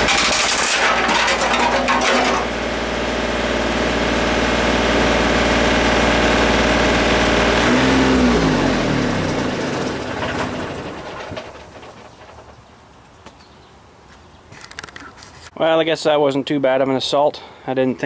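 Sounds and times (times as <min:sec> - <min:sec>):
engine clattering: 0:00.0 - 0:03.0, 0:06.6 - 0:13.0
engine spinning down: 0:00.0 - 0:12.4
backhoe engine running: 0:00.0 - 0:12.6.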